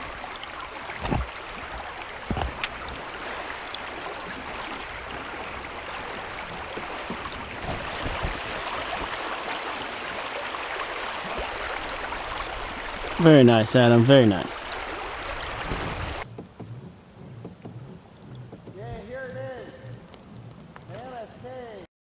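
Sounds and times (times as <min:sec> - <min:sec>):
river water flowing: 0:00.0 - 0:16.3.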